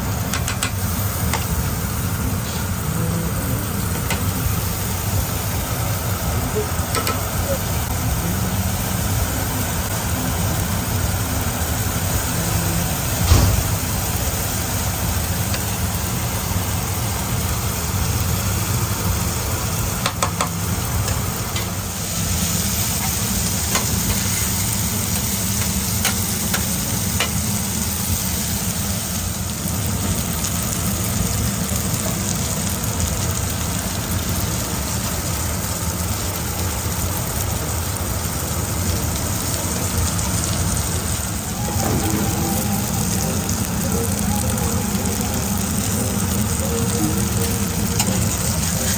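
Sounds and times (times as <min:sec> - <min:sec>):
sizzling hiss: 0:00.0 - 0:48.9
steady mechanical hum: 0:00.0 - 0:48.9
thump: 0:13.2 - 0:13.8.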